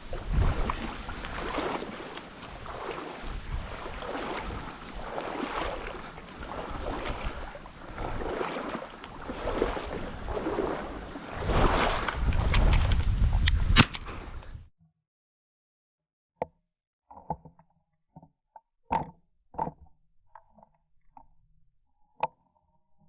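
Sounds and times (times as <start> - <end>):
wind buffeting microphone: 0.0 - 8.4, 9.2 - 14.7
strong wind gusts: 0.0 - 8.5, 9.2 - 14.7
choppy water: 0.0 - 14.4.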